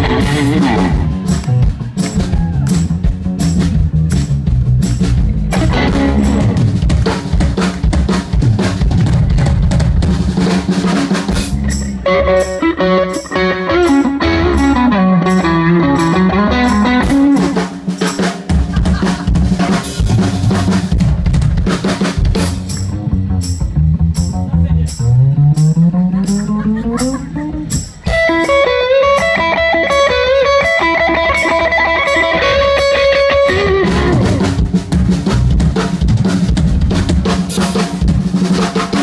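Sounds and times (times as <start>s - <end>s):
bending melodic lead line: 0.0s - 7.0s, 11.6s - 18.0s, 23.0s - 35.0s
bass drum and snare hits: 0.0s - 11.9s, 17.1s - 26.0s, 33.4s - 39.0s
live rock band playing: 0.0s - 39.0s.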